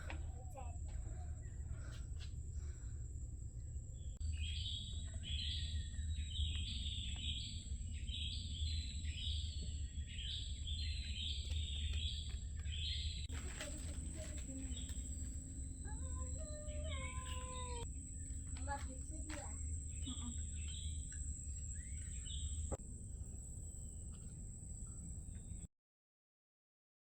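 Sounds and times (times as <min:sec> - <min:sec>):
low background rumble: 0:00.0 - 0:25.6.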